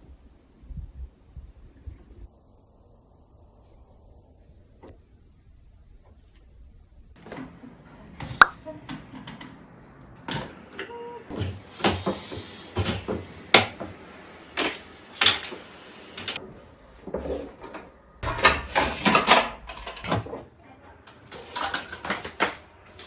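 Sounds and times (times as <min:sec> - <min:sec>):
objects knocking and clicking: 0:21.1 - 0:23.0.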